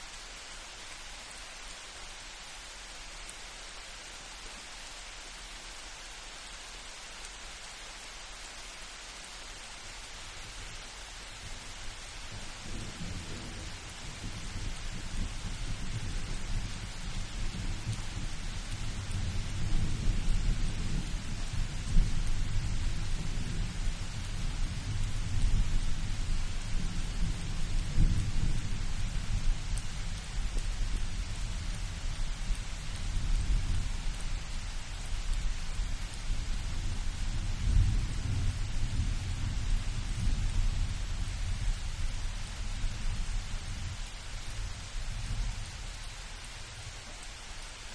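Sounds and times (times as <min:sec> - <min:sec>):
rain hissing: 0:00.0 - 0:47.9
low rolling thunder: 0:12.2 - 0:45.8.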